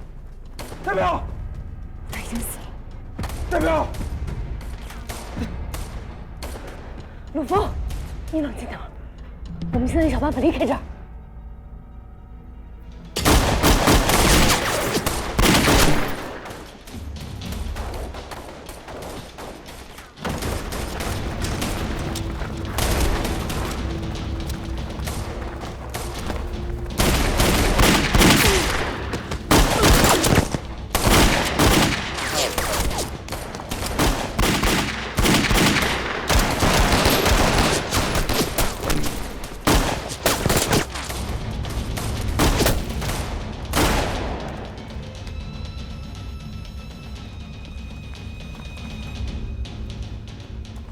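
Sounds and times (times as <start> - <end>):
gunshot volleys: 13.2 - 16.7, 24.5 - 41.2.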